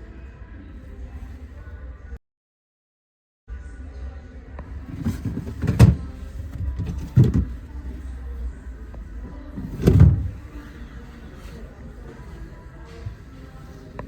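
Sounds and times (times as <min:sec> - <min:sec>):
low steady rumble: 0:04.6 - 0:14.0
dull thumps of fridge freezer: 0:04.9 - 0:07.6, 0:09.5 - 0:10.5.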